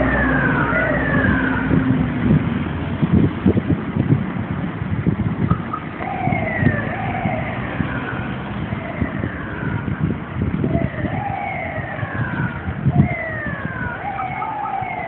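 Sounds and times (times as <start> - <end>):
fire engine siren: 0.0 - 2.4, 5.5 - 15.0
engine rumble: 0.0 - 15.0
street noise: 0.0 - 15.0.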